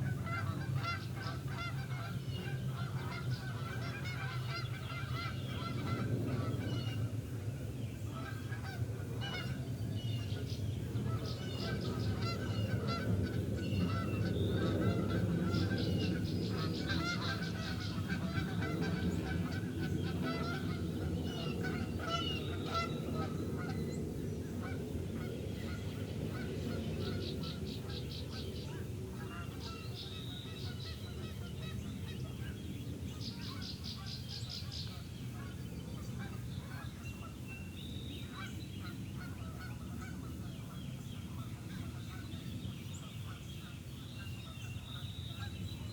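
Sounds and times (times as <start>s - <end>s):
geese honking: 0.0s - 7.0s, 8.0s - 9.6s, 11.0s - 23.9s, 24.6s - 32.6s
low background noise: 0.0s - 45.9s
songbirds trilling: 0.0s - 45.9s.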